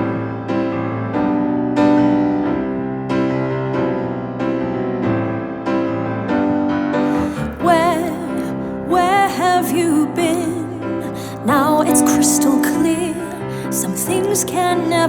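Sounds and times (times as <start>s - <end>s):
piano playing slow chords: 0.0s - 15.0s
woman singing with vibrato: 7.1s - 15.0s.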